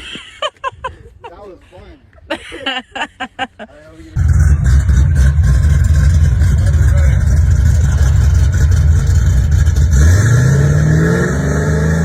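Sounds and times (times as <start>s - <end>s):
car engine rumbling and revving: 4.2s - 12.0s.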